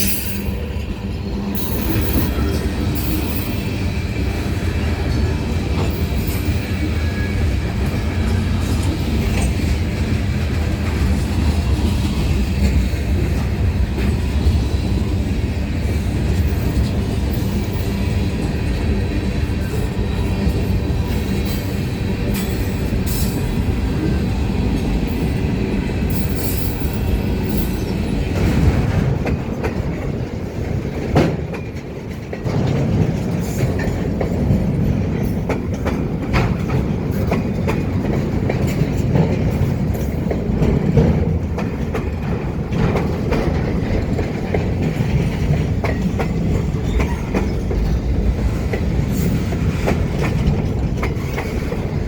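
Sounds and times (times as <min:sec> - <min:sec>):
freight train cars rumbling: 0:00.0 - 0:52.0
wheels clicking over rail joints: 0:15.8 - 0:52.0.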